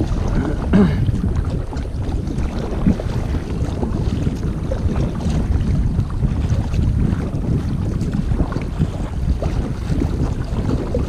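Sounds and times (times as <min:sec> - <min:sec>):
water sloshing around kayak: 0:00.0 - 0:11.0
wind buffeting microphone: 0:00.0 - 0:11.0.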